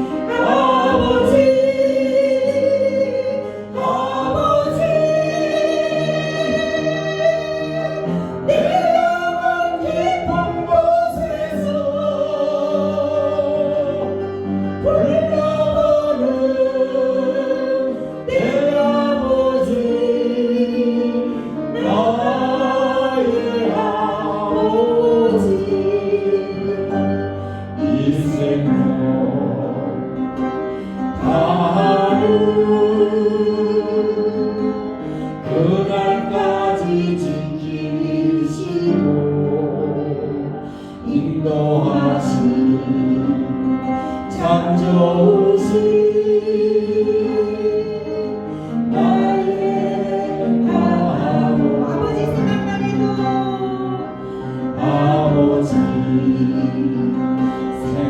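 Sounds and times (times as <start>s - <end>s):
congregation singing worship song: 0.0s - 58.0s
instrumental accompaniment: 0.0s - 58.0s.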